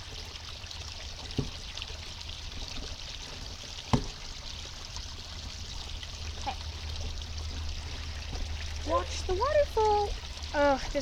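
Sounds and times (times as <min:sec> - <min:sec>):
water pouring over small waterfall: 0:00.0 - 0:11.0
short thumps: 0:03.9 - 0:04.3.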